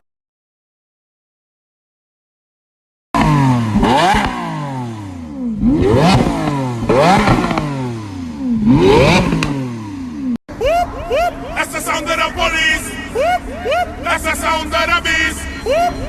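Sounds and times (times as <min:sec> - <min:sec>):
exhaust crackling pops: 0:03.2 - 0:04.5, 0:05.6 - 0:07.9, 0:08.6 - 0:09.7
car engine revving: 0:03.2 - 0:10.4.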